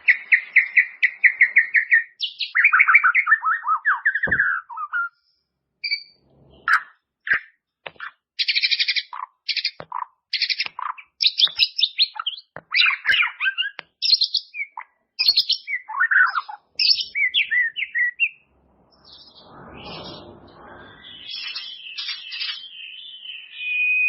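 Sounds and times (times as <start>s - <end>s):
songbird singing varied song: 0.0s - 5.2s, 5.8s - 18.4s, 19.0s - 24.0s
faint rushing noise: 18.4s - 21.6s.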